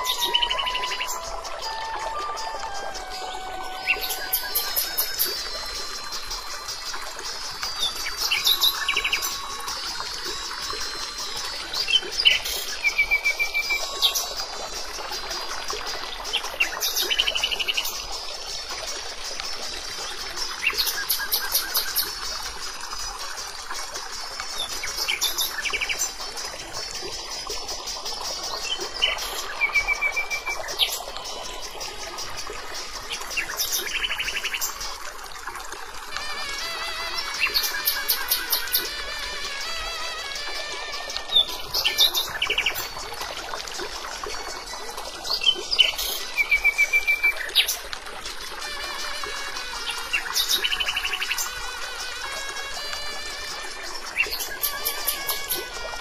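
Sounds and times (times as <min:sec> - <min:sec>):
bird trills: 0:00.0 - 0:14.5.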